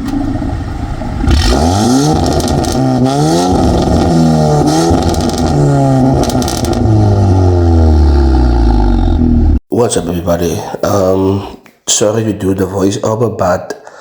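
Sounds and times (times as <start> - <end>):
car engine revving with crackles: 0.0 - 9.6.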